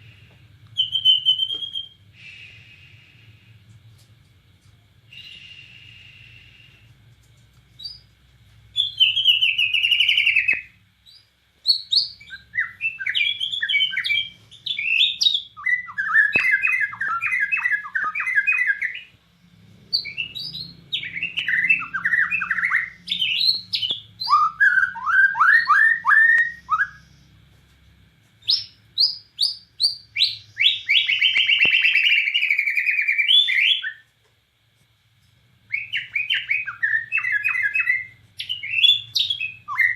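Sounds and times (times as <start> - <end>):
faint low hum: 0.0 - 39.9
bird singing whistled phrases: 0.8 - 2.0, 8.8 - 19.1, 20.0 - 27.0, 28.5 - 34.0, 35.7 - 39.9.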